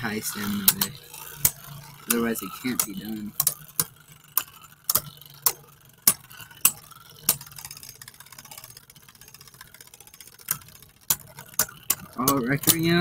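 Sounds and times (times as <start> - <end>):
faint steady hum: 0.0 - 13.0
spinning tops clashing: 0.1 - 13.0.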